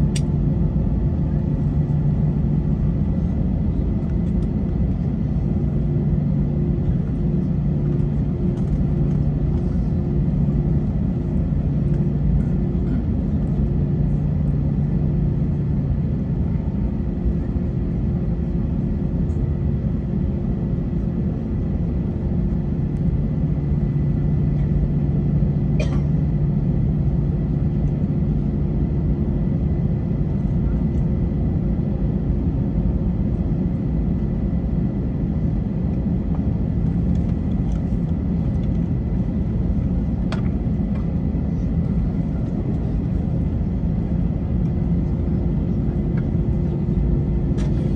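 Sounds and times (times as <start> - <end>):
aircraft engines idling: 0.0 - 47.9
air conditioning running: 31.5 - 47.9.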